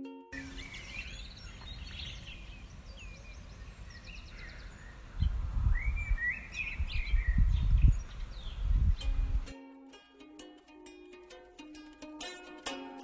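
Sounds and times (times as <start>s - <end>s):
songbirds singing and chirping: 0.3s - 9.5s
wind buffeting microphone: 1.2s - 9.5s.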